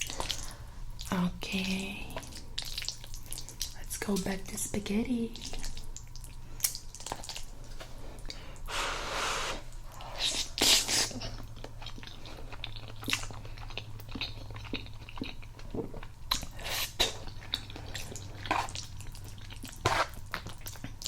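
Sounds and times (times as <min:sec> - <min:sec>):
person chewing food: 0:00.0 - 0:03.8, 0:05.4 - 0:21.0
low steady hum: 0:00.0 - 0:21.0.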